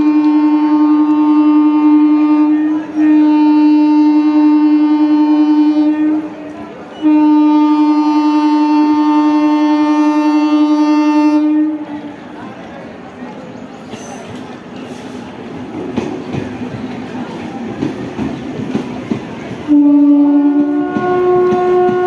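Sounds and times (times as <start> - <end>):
train horn blasts: 0.0 - 12.2, 19.7 - 22.0.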